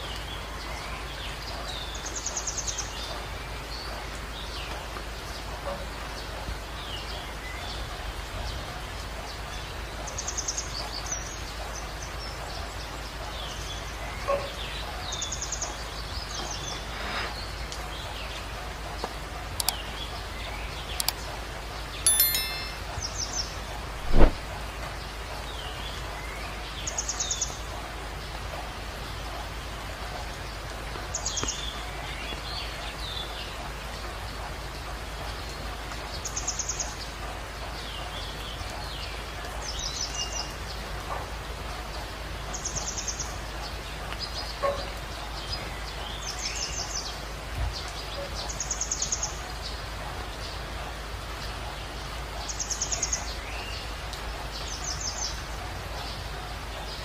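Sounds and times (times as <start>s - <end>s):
sharp knock: 24.1s - 24.4s.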